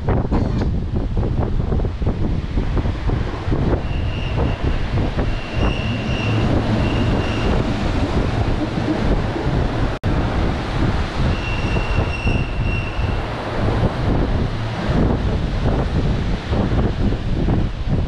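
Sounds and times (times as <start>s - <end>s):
rumble of train wheels on rails: 0.0s - 18.0s
high wheel squeal: 3.6s - 9.8s, 11.2s - 13.3s.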